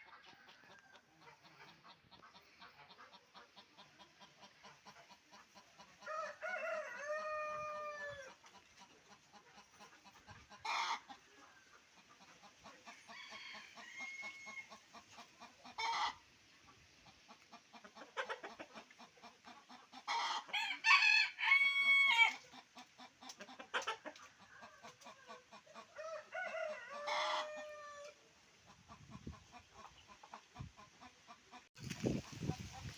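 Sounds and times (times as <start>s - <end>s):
poultry clucking: 0.0s - 32.9s
roosters crowing: 6.0s - 8.4s, 12.9s - 14.8s, 20.1s - 22.4s, 25.8s - 28.2s.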